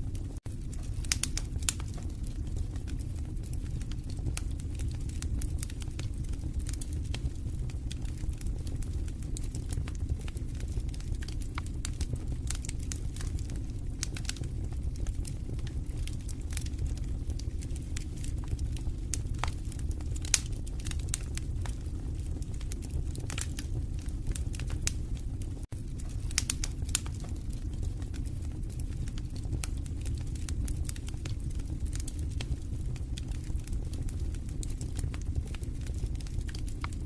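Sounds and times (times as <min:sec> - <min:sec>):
low rumble of flames: 0:00.0 - 0:37.0
sharp pops and snaps of fire: 0:00.0 - 0:37.0
wood fire crackling: 0:00.0 - 0:37.0.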